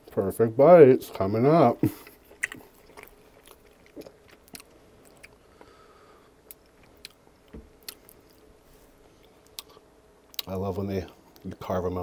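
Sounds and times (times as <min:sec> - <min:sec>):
close-up chewing: 0:01.1 - 0:05.7, 0:06.5 - 0:08.5.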